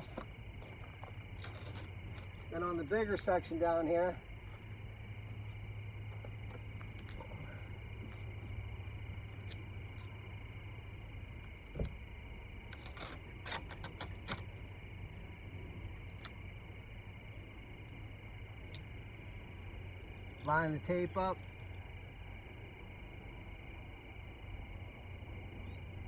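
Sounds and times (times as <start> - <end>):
low background hum: 0.0 - 26.0
short sharp clicks and crackles: 12.7 - 14.4.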